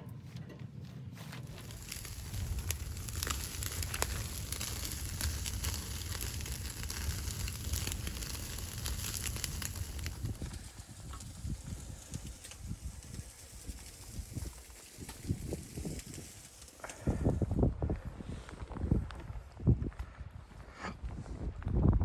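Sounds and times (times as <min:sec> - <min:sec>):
low fire rumble: 0:00.4 - 0:22.0
wood fire crackling and popping: 0:01.4 - 0:17.6.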